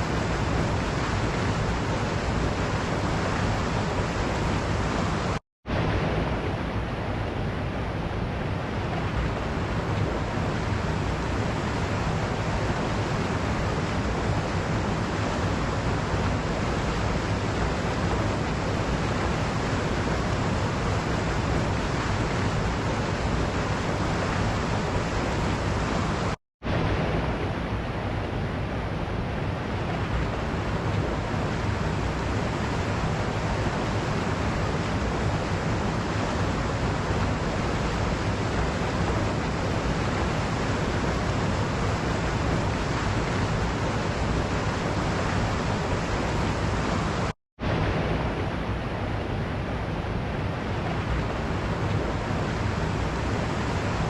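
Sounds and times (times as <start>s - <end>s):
waterfall rushing: 30.0s - 49.1s, 50.6s - 54.0s.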